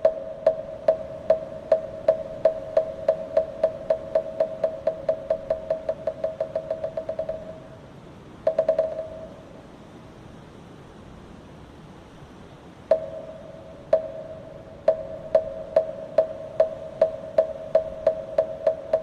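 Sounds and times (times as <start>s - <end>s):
wooden fish drum strikes: 0.0s - 7.7s, 8.5s - 9.4s, 12.9s - 19.0s.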